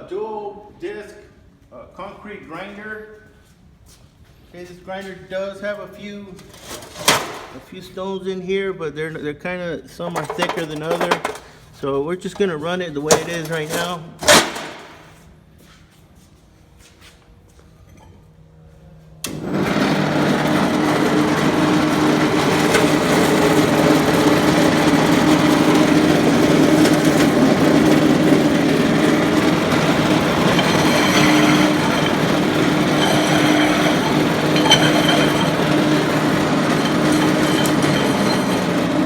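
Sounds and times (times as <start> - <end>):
concrete grinder running: 10.2 - 11.6, 13.0 - 15.0, 19.3 - 39.0.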